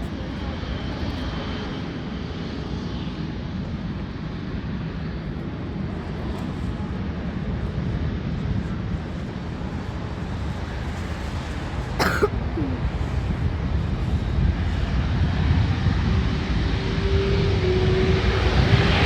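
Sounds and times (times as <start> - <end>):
jet airliner engine whine: 0.0 - 19.0
steady low rumble: 0.0 - 19.0
person coughing: 12.0 - 12.8.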